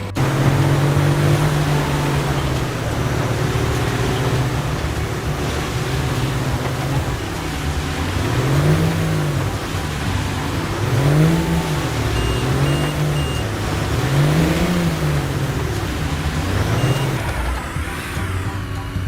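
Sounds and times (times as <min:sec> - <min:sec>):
vehicle engine revving: 0:00.0 - 0:19.0
short high beeps: 0:10.6 - 0:15.3, 0:16.6 - 0:17.4.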